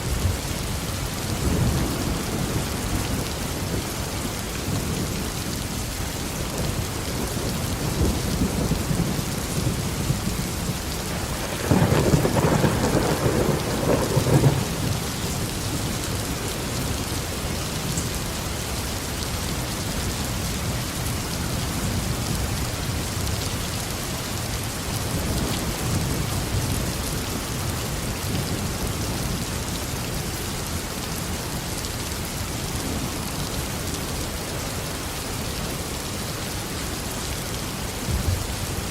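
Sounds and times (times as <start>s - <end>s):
steady rain falling: 0.0s - 38.9s
thunder rumbling: 6.6s - 17.1s, 38.0s - 38.8s.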